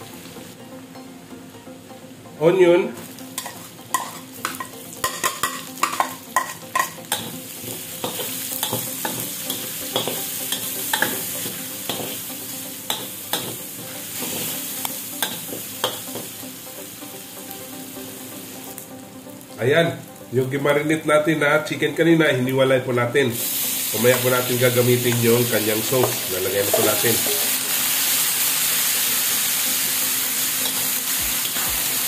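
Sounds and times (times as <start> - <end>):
onion and garlic sizzling in oil: 2.9 - 20.6, 23.3 - 32.0
spatula scraping and clacking in wok: 3.4 - 12.3.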